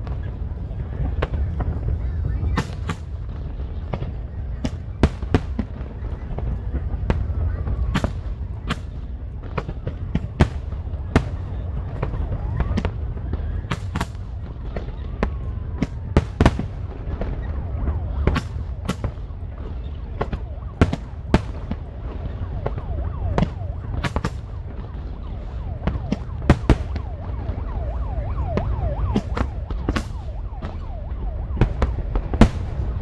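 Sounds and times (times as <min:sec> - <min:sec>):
firework whistling: 0:01.0 - 0:04.1, 0:15.9 - 0:33.0.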